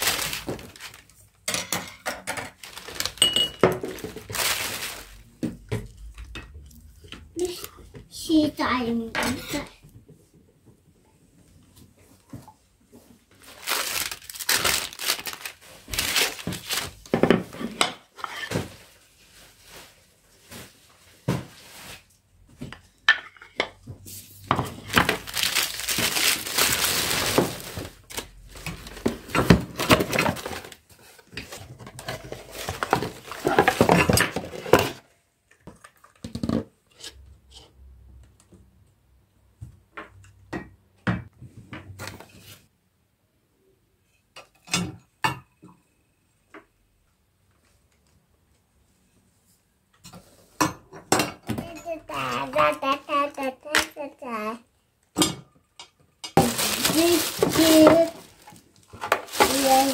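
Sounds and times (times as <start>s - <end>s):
crinkling and crumpling: 0.0s - 1.4s, 2.2s - 7.8s, 11.8s - 22.2s, 24.2s - 35.0s, 56.3s - 59.9s.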